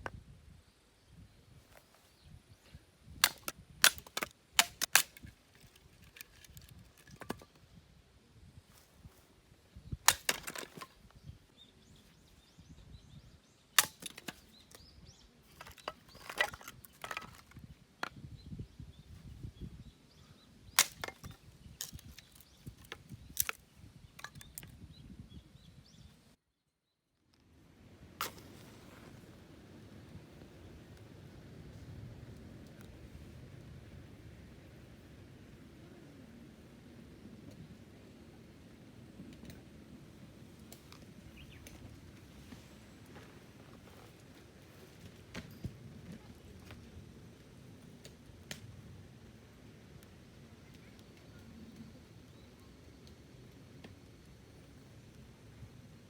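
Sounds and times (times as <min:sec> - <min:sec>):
wood being split: 0:03.2 - 0:07.6, 0:10.1 - 0:10.9, 0:13.8 - 0:14.4, 0:15.5 - 0:17.6, 0:20.8 - 0:23.6
handling rustle: 0:04.0 - 0:07.6.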